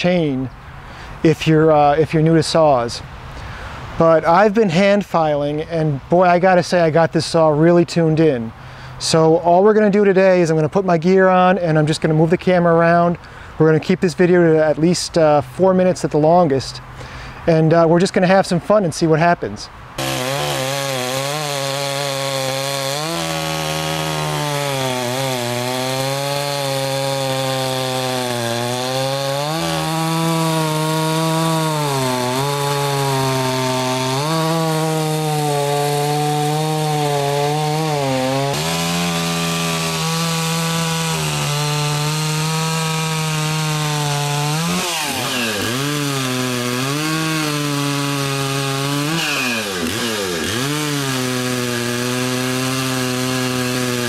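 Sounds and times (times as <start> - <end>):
chainsaw cutting wood: 20.0 - 54.0.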